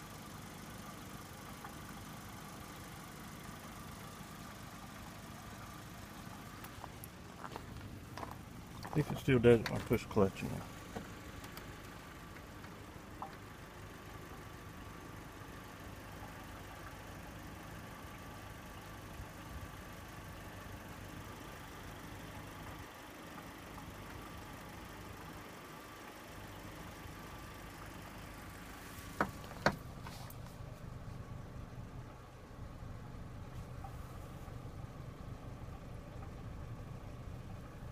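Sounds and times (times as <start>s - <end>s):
car engine idling: 0.0s - 37.9s.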